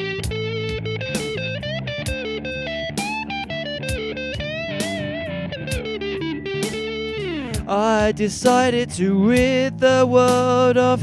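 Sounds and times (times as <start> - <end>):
electric guitar music: 0.0 - 11.0.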